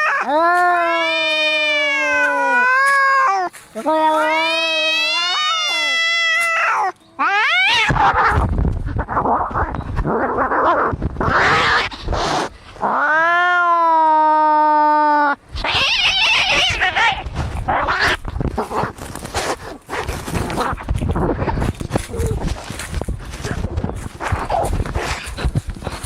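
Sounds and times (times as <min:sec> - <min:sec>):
cat yowling: 0:00.0 - 0:08.4, 0:12.8 - 0:18.2
cats hissing and screeching: 0:00.0 - 0:26.0.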